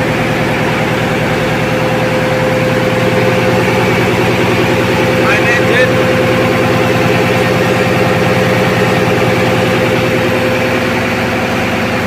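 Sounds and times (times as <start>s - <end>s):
constant whine: 0.0s - 12.0s
diesel machinery drone: 0.0s - 12.0s.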